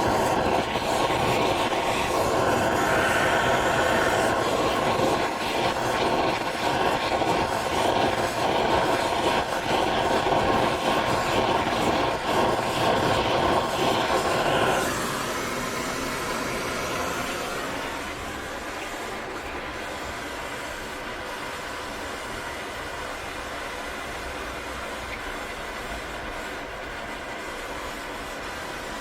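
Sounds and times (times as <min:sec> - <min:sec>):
gas torch flame hissing: 0:00.0 - 0:29.0.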